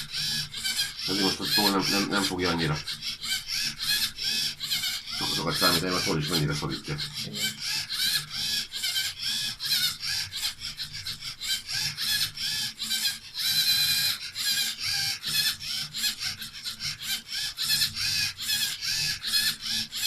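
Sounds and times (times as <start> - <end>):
motors humming: 0.0 - 10.0.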